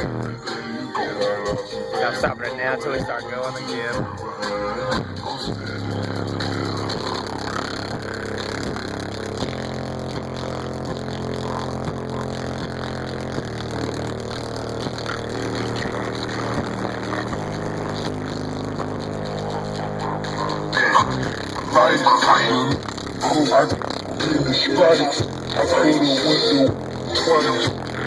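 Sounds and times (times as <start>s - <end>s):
bass-heavy music through subwoofers: 0.0s - 28.0s.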